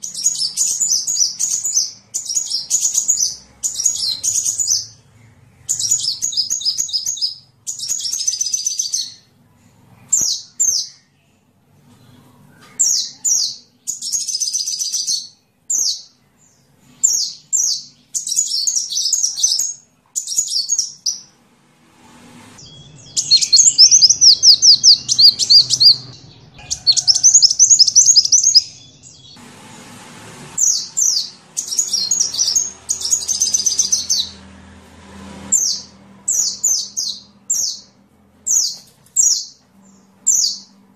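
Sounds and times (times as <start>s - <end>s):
sunbird chirping and trilling: 0.0s - 9.4s, 10.0s - 21.4s, 22.6s - 29.4s, 30.5s - 34.6s, 35.4s - 40.8s.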